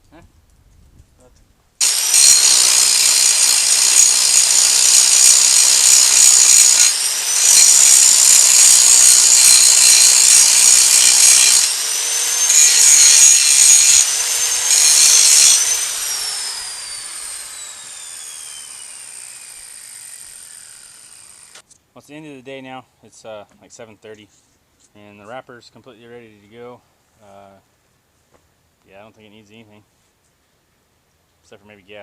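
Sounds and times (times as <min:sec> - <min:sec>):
angle grinder grinding metal: 0:01.8 - 0:21.6.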